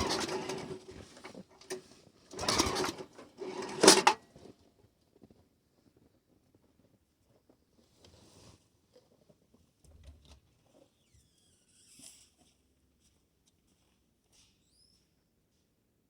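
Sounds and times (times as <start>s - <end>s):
faint high squeaks: 10.8s - 12.4s, 14.4s - 15.1s.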